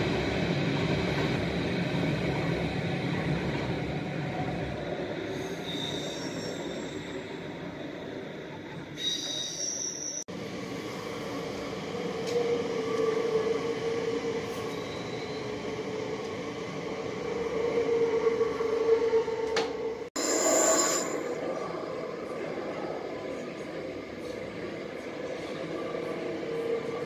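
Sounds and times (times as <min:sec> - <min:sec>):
train wheel squeal: 0:05.2 - 0:10.3, 0:12.0 - 0:15.8, 0:17.9 - 0:21.6
train humming whine: 0:10.3 - 0:27.0.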